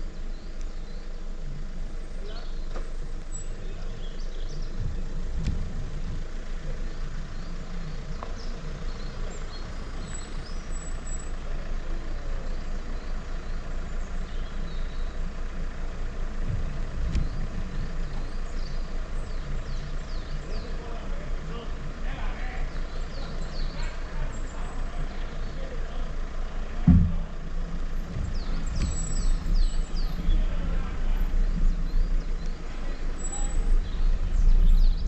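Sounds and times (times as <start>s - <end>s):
engine running low rumble: 0.0s - 35.0s.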